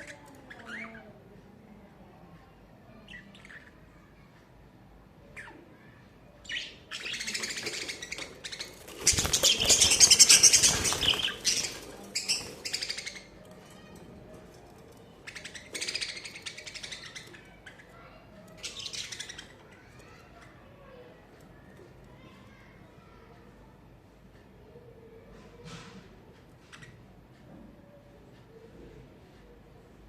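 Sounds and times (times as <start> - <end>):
budgerigars chattering and chirping: 6.5 - 13.4, 15.2 - 17.9.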